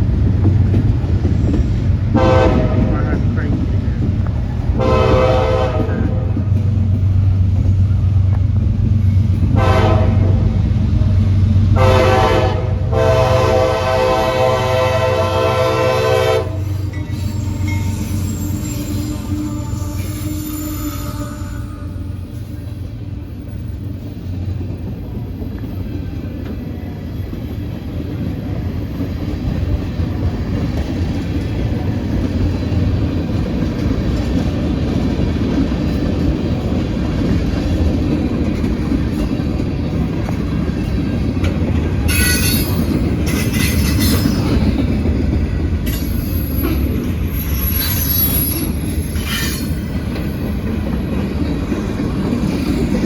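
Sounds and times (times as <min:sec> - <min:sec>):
train wheels rumbling on rail: 0:00.0 - 0:53.0
wheel flanges squealing: 0:16.6 - 0:22.6, 0:42.0 - 0:44.8, 0:45.8 - 0:51.6.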